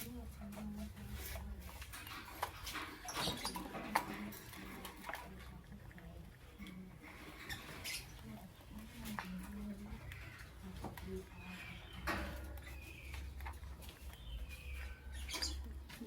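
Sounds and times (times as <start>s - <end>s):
clicks and scratchy patter: 0.0s - 16.0s
lovebirds chirping and squeaking: 0.0s - 16.0s.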